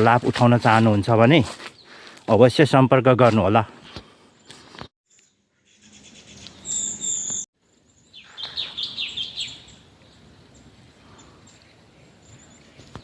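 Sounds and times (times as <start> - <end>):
short falling bird chirps: 8.1 - 9.8.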